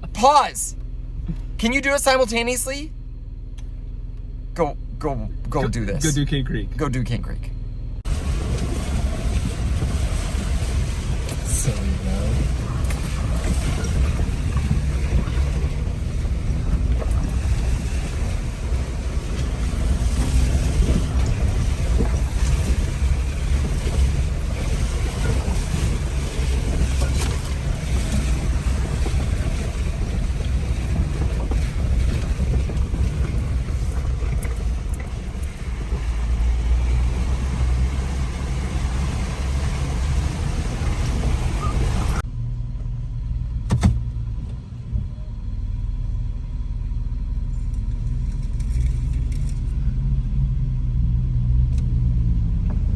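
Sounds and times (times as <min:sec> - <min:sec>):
engine and tyres rumbling: 0:00.0 - 0:52.9.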